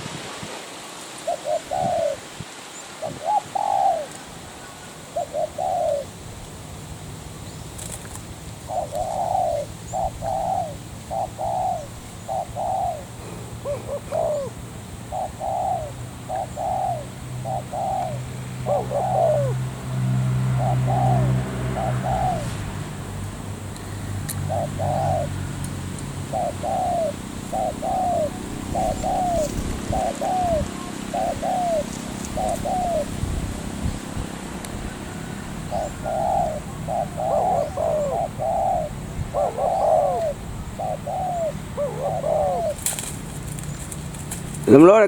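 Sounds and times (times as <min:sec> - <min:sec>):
dove cooing: 0:01.2 - 0:02.4, 0:03.0 - 0:06.3, 0:07.8 - 0:22.8, 0:23.9 - 0:45.0.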